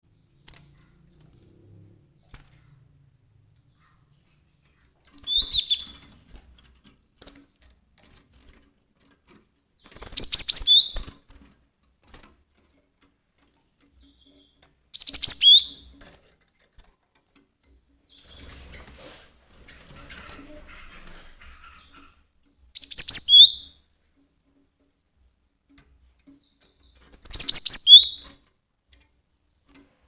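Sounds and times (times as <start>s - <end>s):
bird singing high ringing notes: 22.8s - 23.8s, 27.4s - 28.2s.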